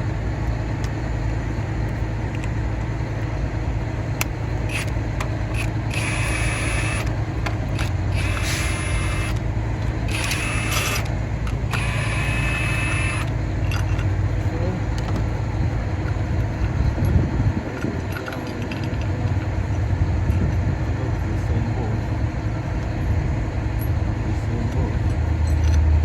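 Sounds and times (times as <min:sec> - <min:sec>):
low background rumble: 0:00.0 - 0:26.0
power ratchet whirring: 0:04.2 - 0:14.1.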